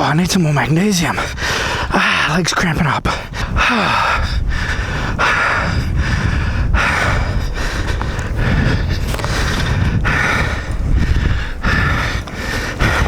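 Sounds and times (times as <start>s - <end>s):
man breathing hard: 1.2s - 2.4s, 3.1s - 13.0s
low rumble: 3.2s - 13.0s.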